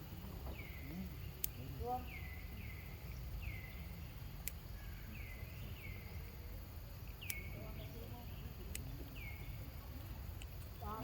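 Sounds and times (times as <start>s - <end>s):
sharp click: 7.2s - 7.5s.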